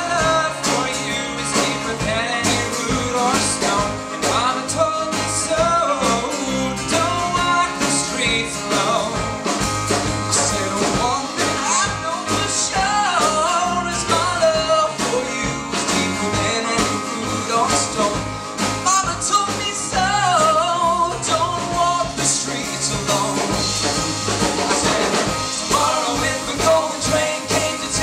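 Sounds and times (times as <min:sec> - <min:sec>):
sliding held melody line: 0:00.0 - 0:28.0
sustained bass: 0:00.0 - 0:28.0
steady beat: 0:06.9 - 0:28.0.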